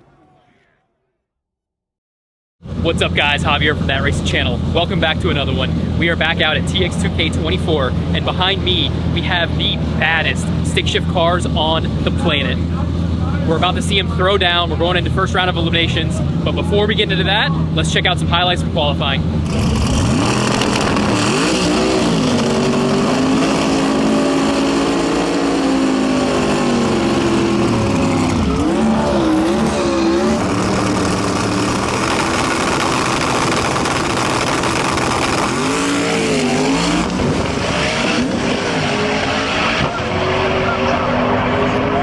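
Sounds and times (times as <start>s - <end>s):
engine shifting through gears: 2.6s - 42.0s
race car engines at full throttle: 2.6s - 42.0s.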